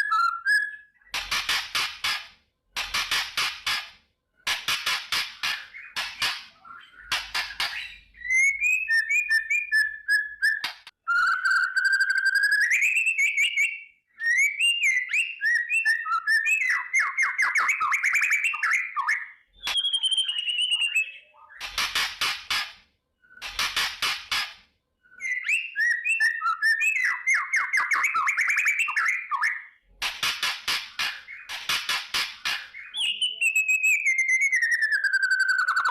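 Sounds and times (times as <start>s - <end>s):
bird singing whistled phrases: 0.0s - 1.0s, 6.6s - 21.5s, 25.0s - 29.8s, 32.8s - 35.9s.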